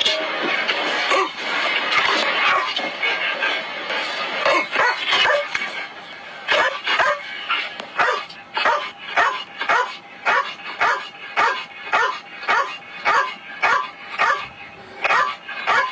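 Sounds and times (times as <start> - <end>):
dog barking: 4.4 - 5.5, 6.5 - 7.3, 8.0 - 15.9.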